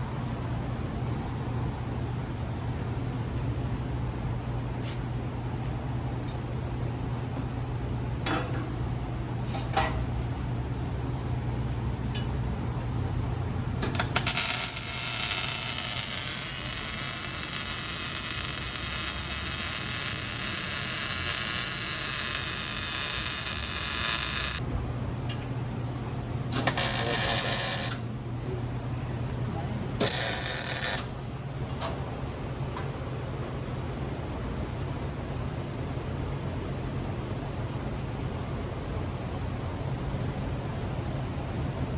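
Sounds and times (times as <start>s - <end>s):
low shop hum: 0.0s - 41.9s
cutoff wheel cutting steel pipe: 13.8s - 24.6s, 26.6s - 28.0s, 30.0s - 31.1s.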